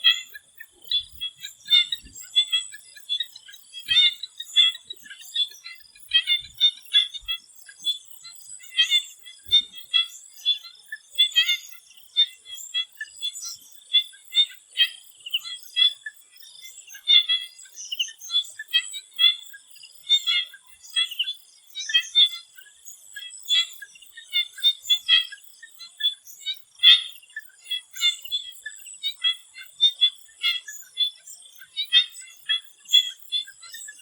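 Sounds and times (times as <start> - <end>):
frogs chirping in chorus: 0.0 - 34.0.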